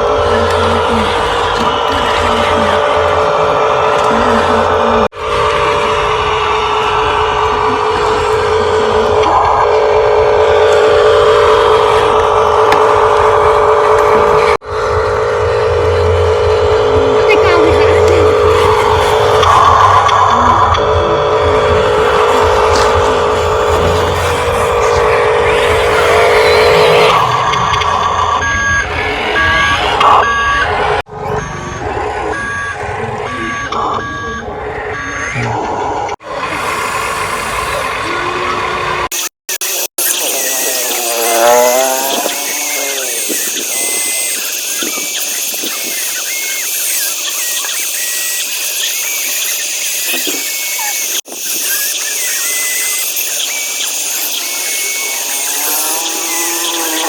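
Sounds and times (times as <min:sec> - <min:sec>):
mechanical running noise: 0:00.0 - 0:57.0
toy electric motors whining: 0:00.0 - 0:57.0
two-tone reversing beeps: 0:15.9 - 0:36.2, 0:39.1 - 0:57.0.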